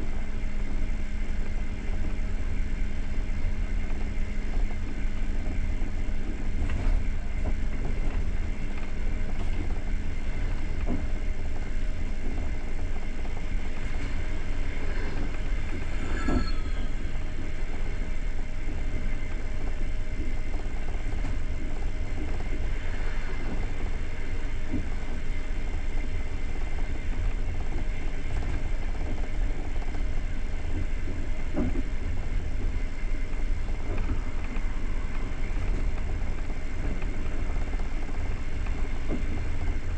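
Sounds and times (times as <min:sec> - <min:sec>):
train wheels rumbling on rails: 0:00.0 - 0:39.9
brief squeal: 0:15.9 - 0:17.3.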